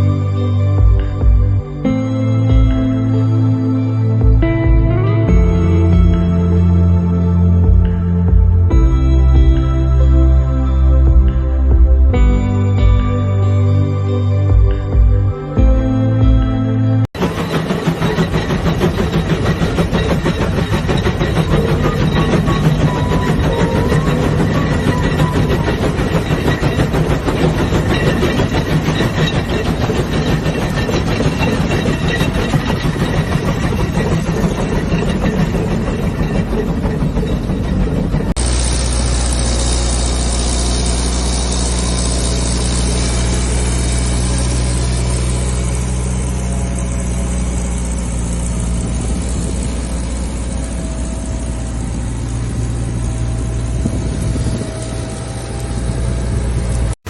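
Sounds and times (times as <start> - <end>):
motor engine running steadily: 14.5 - 57.0
rattling clattering machinery: 17.1 - 57.0.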